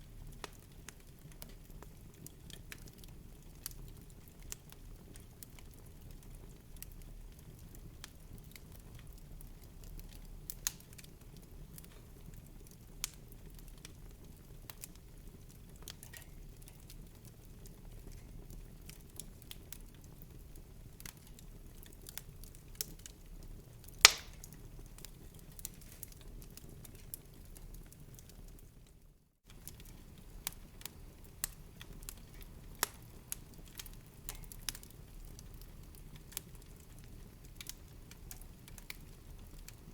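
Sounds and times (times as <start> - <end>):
wood fire crackling: 0.0 - 39.9
loud pop of fire: 24.0 - 24.6.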